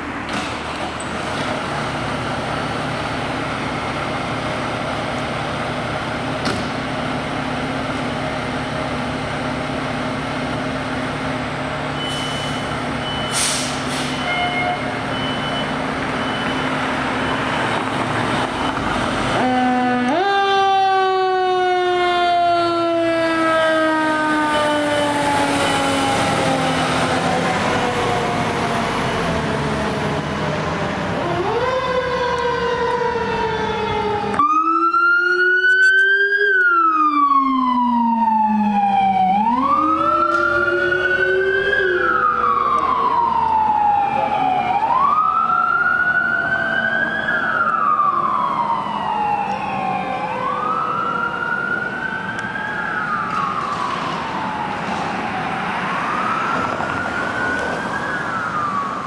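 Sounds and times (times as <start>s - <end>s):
road noise: 0.0s - 59.0s
siren wailing: 14.1s - 59.0s.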